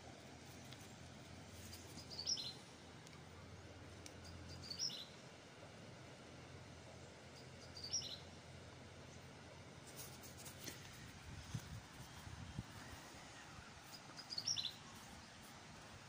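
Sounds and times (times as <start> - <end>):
faint outdoor background: 0.0 - 16.0
small bird chirping: 1.6 - 2.7, 4.0 - 5.2, 7.3 - 8.3, 13.4 - 15.5.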